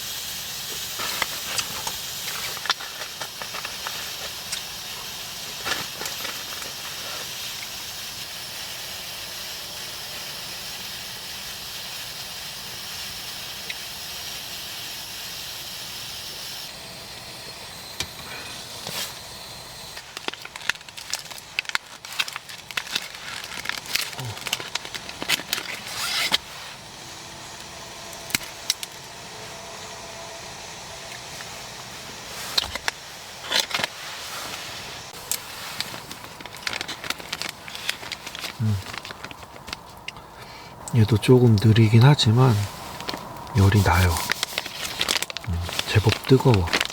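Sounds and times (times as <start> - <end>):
heating pack steamy hiss: 0.0 - 46.9
plastic packaging crinkling: 0.9 - 7.4, 19.8 - 26.6, 28.2 - 29.2, 32.5 - 40.4, 41.0 - 46.9.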